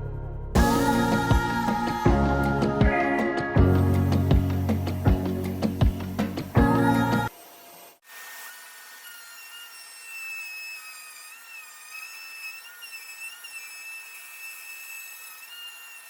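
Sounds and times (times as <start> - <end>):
power tool motor whining: 3.8 - 16.0.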